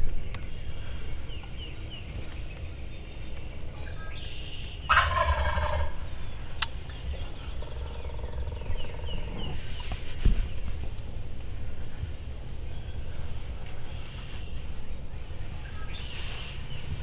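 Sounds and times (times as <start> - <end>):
turkey gobbling: 4.0 - 9.6
short thump: 10.2 - 10.5.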